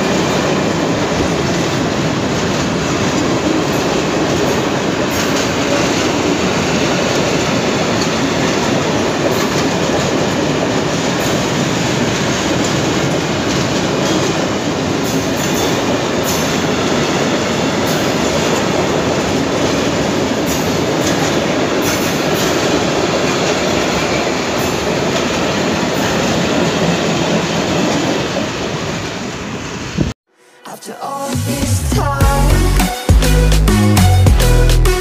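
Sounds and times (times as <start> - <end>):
train wheels rumbling and rattling: 0.0 - 30.1.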